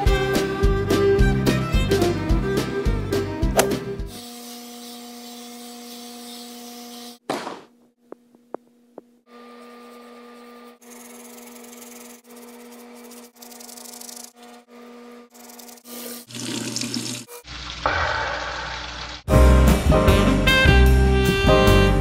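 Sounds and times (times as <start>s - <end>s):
toothbrush brushing: 10.8s - 14.4s, 15.3s - 16.3s
mouth rinsing from tap: 16.2s - 19.2s.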